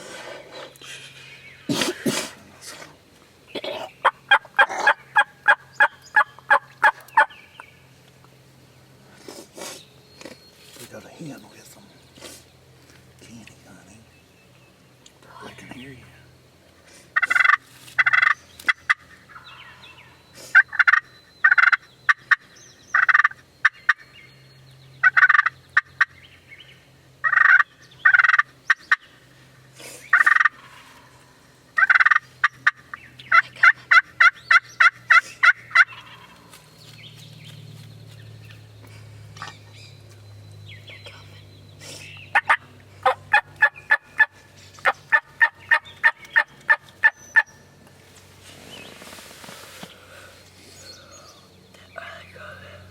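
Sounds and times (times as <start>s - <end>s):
wild turkeys gobbling: 4.0s - 7.4s, 16.9s - 24.1s, 25.0s - 26.2s, 27.2s - 29.4s, 30.1s - 36.6s, 41.9s - 47.6s.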